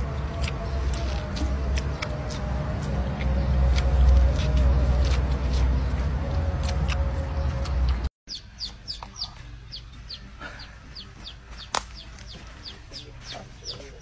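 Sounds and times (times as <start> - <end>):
loud low rumbling noise: 0.0 - 8.1
ducklings peeping: 6.6 - 14.0.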